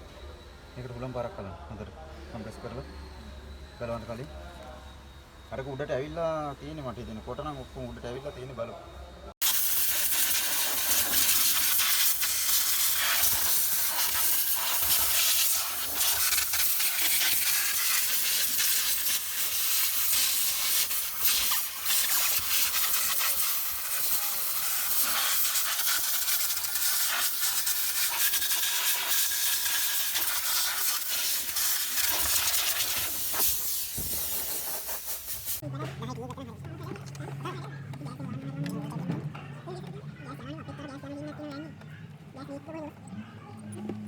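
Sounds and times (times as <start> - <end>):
compressed air blow gun hissing: 9.4 - 35.6.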